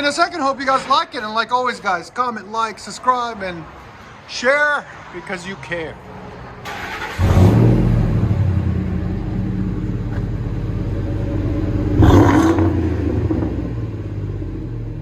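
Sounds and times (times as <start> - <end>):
car engine starting and idling: 6.6 - 15.0.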